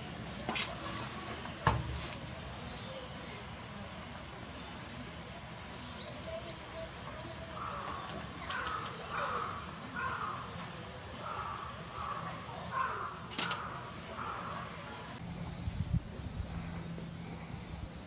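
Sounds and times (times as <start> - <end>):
crow cawing: 7.6 - 10.6, 11.2 - 14.8.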